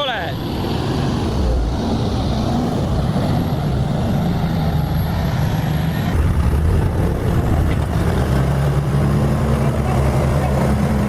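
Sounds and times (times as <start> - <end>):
heavy vehicle engine running: 0.0 - 11.0.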